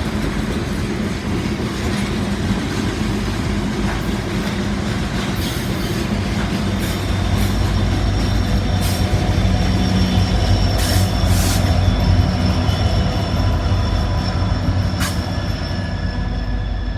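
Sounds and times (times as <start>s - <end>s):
freight train cars rumbling: 0.0s - 16.9s
wheel squeal: 6.7s - 16.9s.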